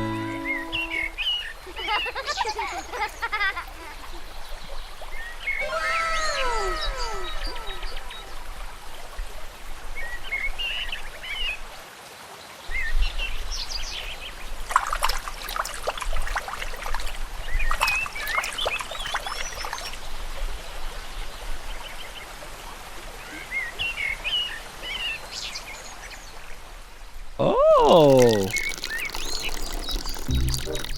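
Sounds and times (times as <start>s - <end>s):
small birds chirping: 27.8s - 30.9s.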